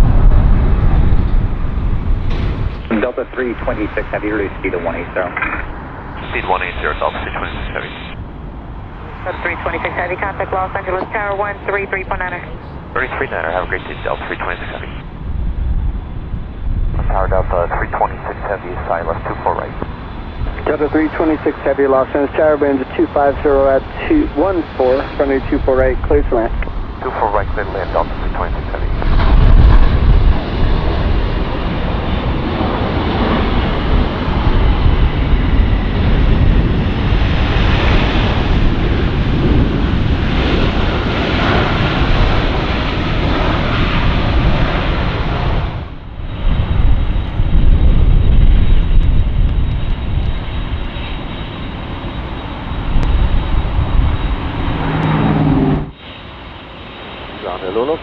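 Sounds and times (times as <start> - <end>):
jet engines on approach: 0.0 - 58.0.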